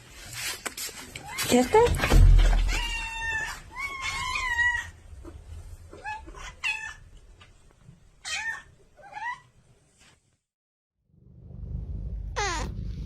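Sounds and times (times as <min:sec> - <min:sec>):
cat meowing: 0:02.7 - 0:05.0, 0:12.4 - 0:12.8.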